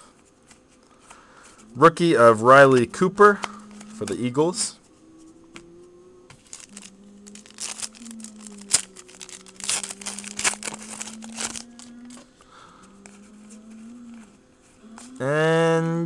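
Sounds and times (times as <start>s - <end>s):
foil wrapper crinkling and tearing: 6.4s - 12.2s.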